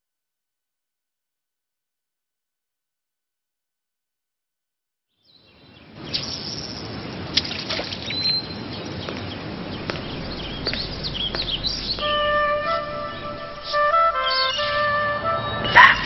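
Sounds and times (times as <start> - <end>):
birds chirping: 8.0 - 16.0
steady rushing noise: 8.9 - 15.0
high whistled note: 10.7 - 16.0.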